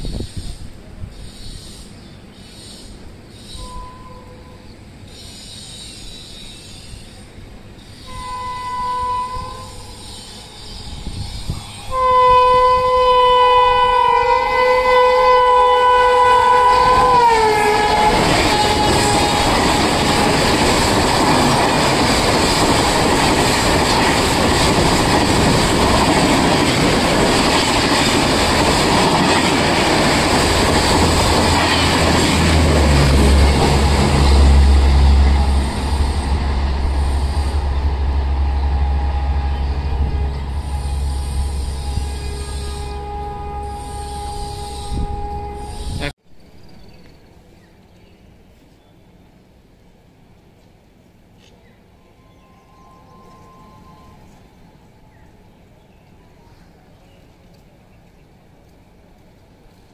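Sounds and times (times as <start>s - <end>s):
train air horn blasts: 3.5s - 4.8s, 8.0s - 20.3s, 30.2s - 46.1s, 52.0s - 55.0s.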